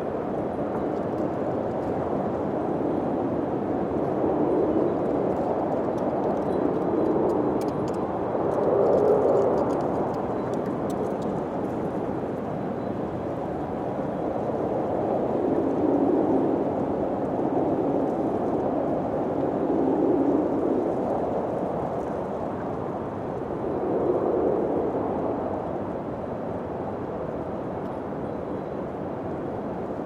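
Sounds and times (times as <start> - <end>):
wind blowing in gusts: 0.0 - 30.0.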